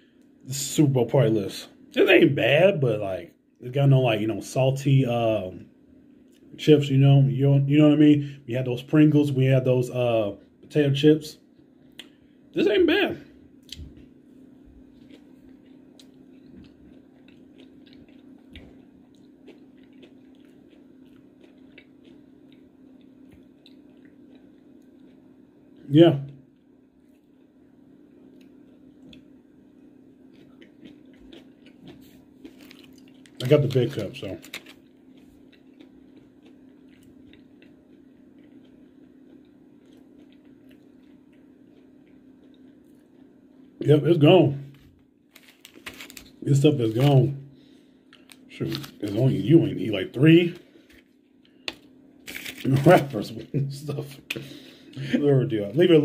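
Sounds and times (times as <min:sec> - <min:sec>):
steady low hum: 0:00.0 - 0:56.0
crunchy chewing clicks: 0:14.8 - 0:25.9, 0:26.5 - 0:43.9.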